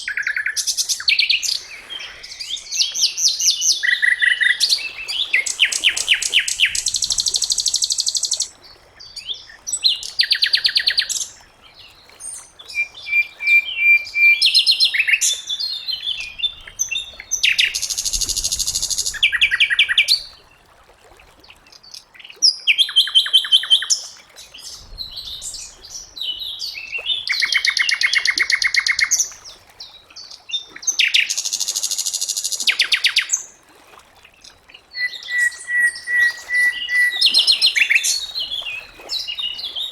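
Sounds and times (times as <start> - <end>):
songbird trilling: 12.7 - 15.4, 16.0 - 20.2, 25.2 - 29.4, 35.0 - 39.9.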